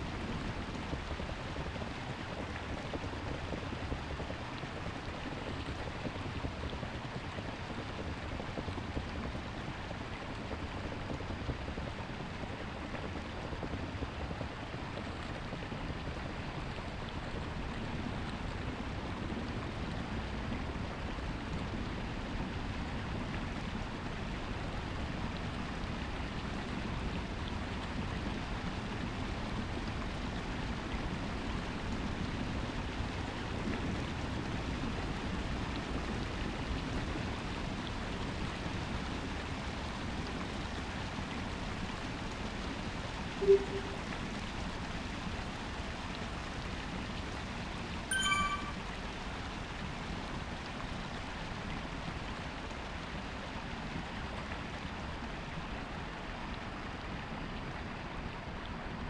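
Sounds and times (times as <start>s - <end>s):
short low beep: 43.4s - 44.2s, 48.1s - 48.9s.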